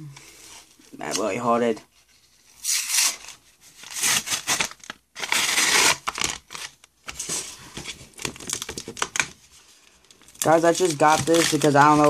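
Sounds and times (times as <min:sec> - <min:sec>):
card packaging crinkling and tearing: 0:02.6 - 0:12.0.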